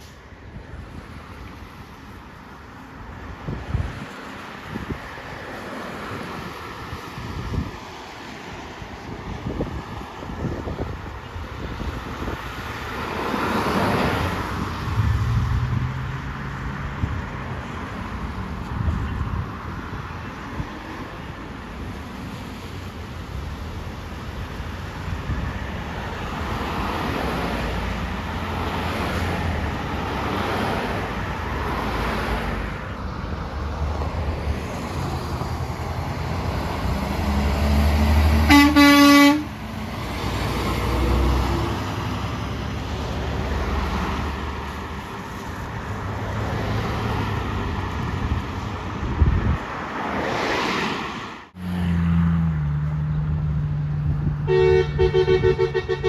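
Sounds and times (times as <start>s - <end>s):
trucks passing on road: 0.0s - 56.0s
loud horn blast: 38.3s - 39.6s, 54.4s - 56.0s.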